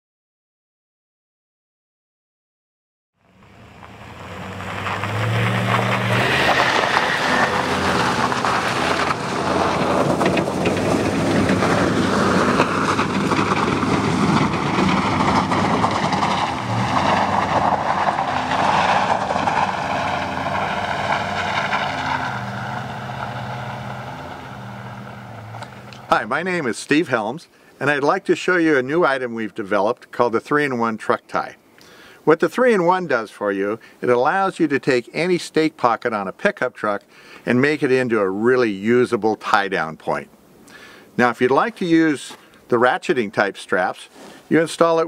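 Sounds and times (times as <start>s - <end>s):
vehicle engine running: 3.2s - 26.4s.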